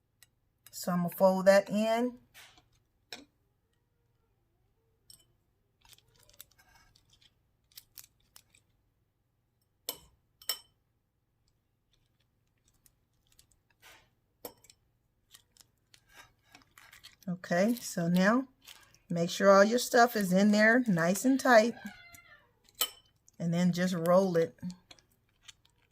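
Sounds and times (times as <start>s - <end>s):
tortilla wrap rustling: 5.8s - 8.8s, 11.8s - 14.2s, 15.1s - 21.0s.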